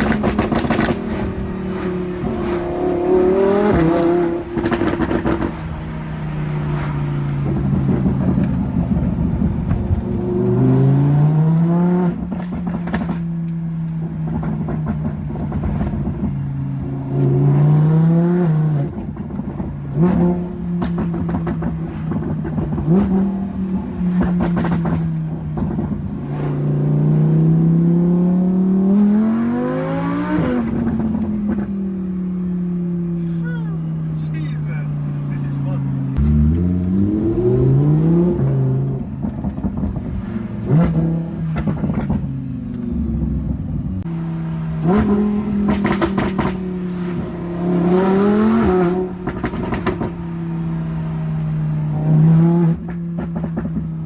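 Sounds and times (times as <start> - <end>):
exhaust pops and crackles: 0.0 - 10.7, 12.1 - 17.0, 18.9 - 27.2, 33.2 - 44.1, 44.7 - 50.5, 52.3 - 54.0
loud sports car engine revving: 0.0 - 13.4, 14.0 - 31.7, 33.1 - 53.4.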